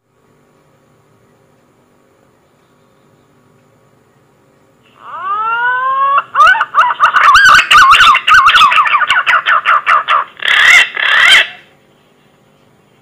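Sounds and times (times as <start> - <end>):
pigeon whistling song: 5.1 - 11.6.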